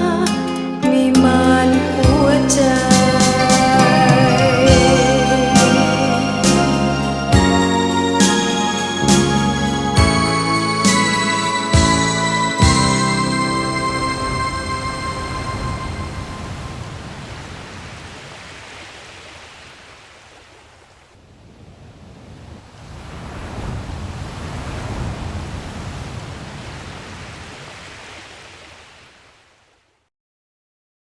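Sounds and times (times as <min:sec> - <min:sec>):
ocean waves hissing: 0:01.7 - 0:20.3.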